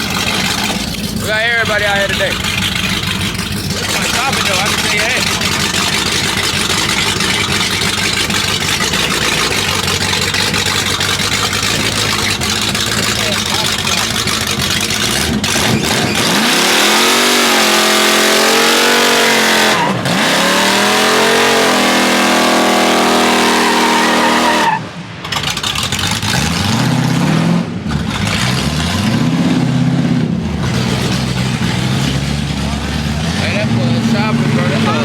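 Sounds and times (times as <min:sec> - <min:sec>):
tyres screeching: 0:00.0 - 0:24.9
car engine revving hard: 0:00.0 - 0:35.0.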